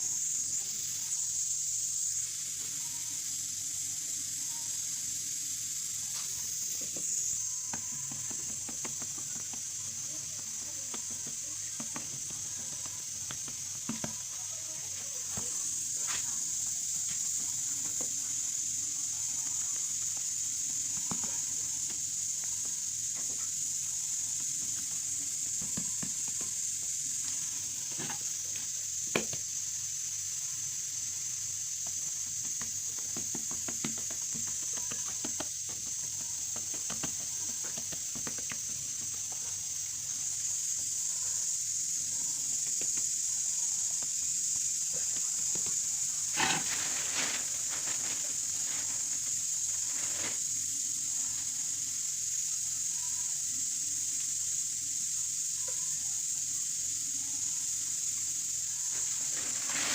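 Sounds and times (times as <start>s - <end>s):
sizzling hiss with crackles: 0.0s - 59.9s.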